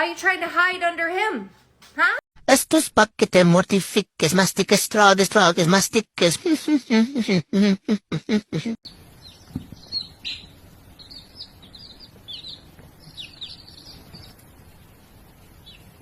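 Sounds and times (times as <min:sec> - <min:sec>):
small birds chirping: 0:08.9 - 0:16.0.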